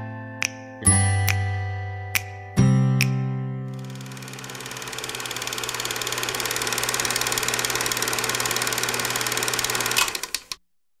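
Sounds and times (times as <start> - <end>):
movie projector clattering: 3.8 - 10.6.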